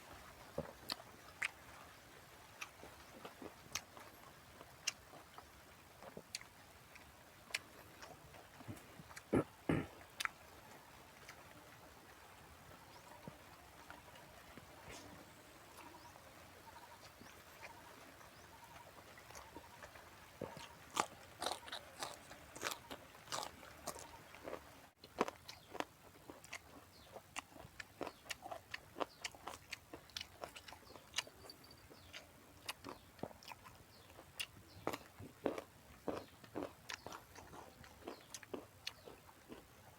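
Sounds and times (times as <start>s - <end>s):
person crunching raw vegetables: 20.4s - 39.7s.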